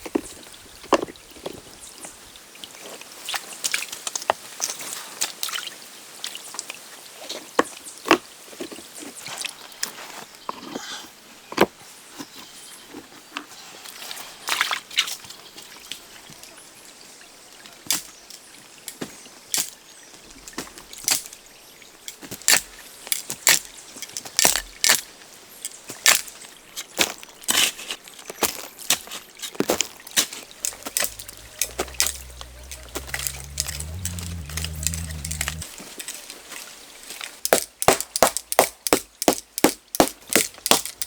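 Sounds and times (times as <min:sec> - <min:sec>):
low rumble: 0:30.9 - 0:35.7.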